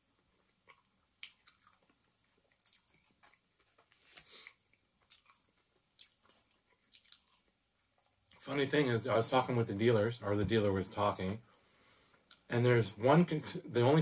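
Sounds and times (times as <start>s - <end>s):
person chewing food: 0.0s - 8.4s
faint mouth smacks and clicks: 0.6s - 5.4s, 6.0s - 7.4s.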